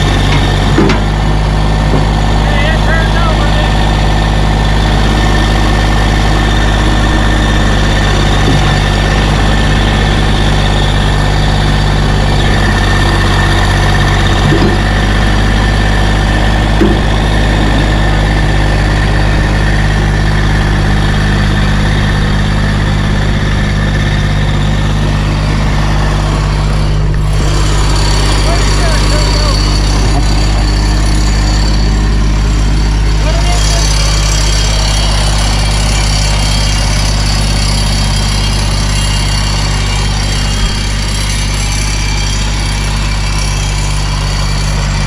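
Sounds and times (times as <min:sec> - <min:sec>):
tractor engine running: 0:00.0 - 0:45.0.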